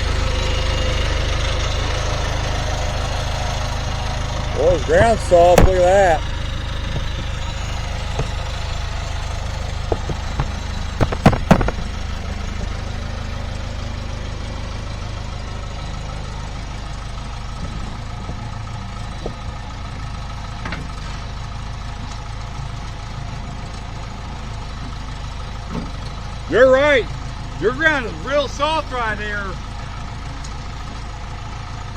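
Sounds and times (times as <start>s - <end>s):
engine idling: 0.0s - 31.9s
sharp metallic clanks: 4.6s - 12.2s.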